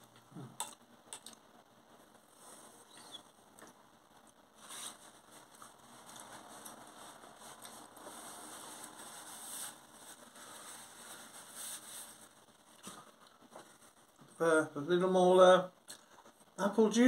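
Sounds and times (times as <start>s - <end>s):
faint wet chewing: 0.0s - 1.4s.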